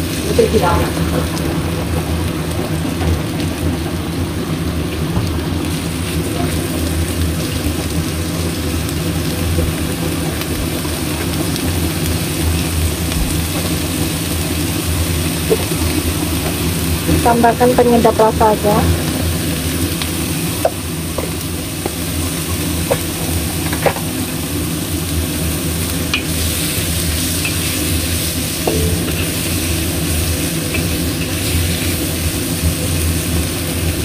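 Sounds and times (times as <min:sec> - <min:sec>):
squid sizzling in oil: 0:00.0 - 0:34.0
low steady hum: 0:28.4 - 0:32.3.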